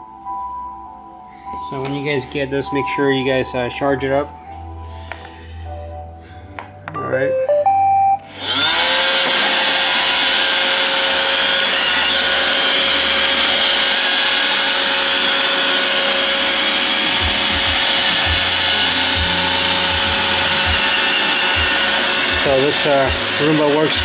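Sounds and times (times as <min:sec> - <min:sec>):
robot vacuum running: 0:08.3 - 0:24.0.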